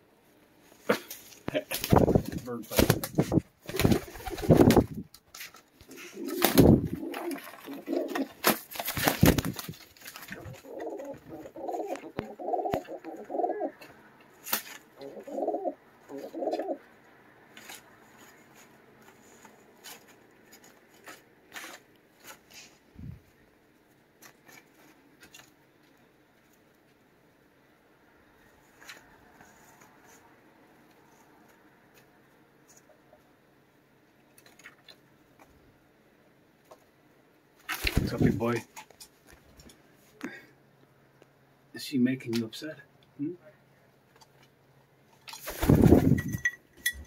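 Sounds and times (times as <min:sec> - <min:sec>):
pigeons scuffling: 0:01.1 - 0:16.8, 0:37.6 - 0:39.8, 0:45.2 - 0:47.0
pigeon cooing: 0:05.9 - 0:08.4, 0:10.4 - 0:13.9, 0:15.0 - 0:16.9.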